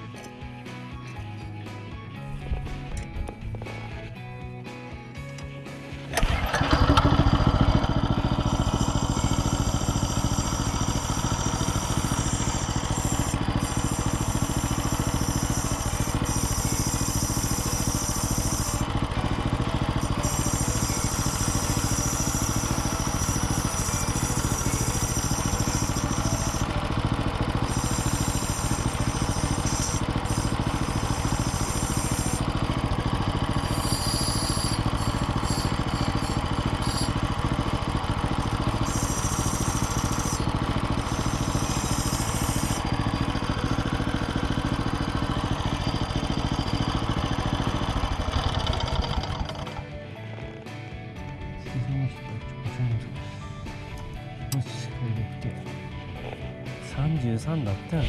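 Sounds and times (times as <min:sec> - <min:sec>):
small engine running: 0:00.0 - 0:58.0.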